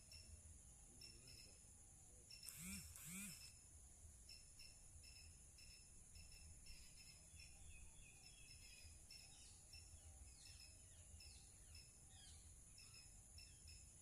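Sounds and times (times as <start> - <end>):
short insect chirps: 1.0 - 14.0
high-pitched insect drone: 2.3 - 3.6.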